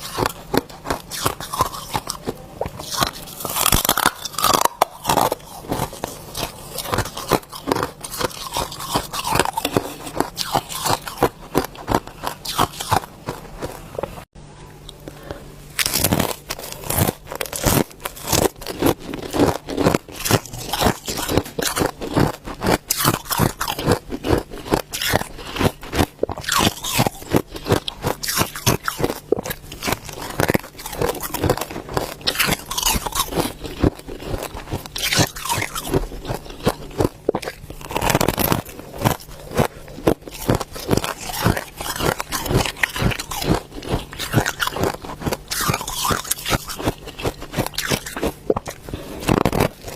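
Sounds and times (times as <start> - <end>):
ice crunching between teeth: 0.0 - 14.1, 15.7 - 49.9.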